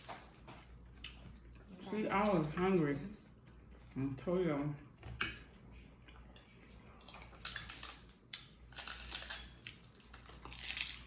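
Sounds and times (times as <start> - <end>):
crunchy food being chewed: 0.0 - 2.7, 5.4 - 11.0.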